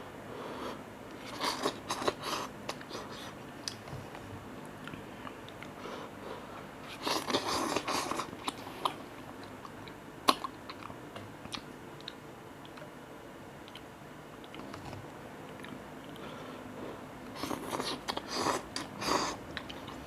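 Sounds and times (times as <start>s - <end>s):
person chewing noodles: 1.1s - 3.8s, 6.4s - 12.9s, 15.5s - 20.0s.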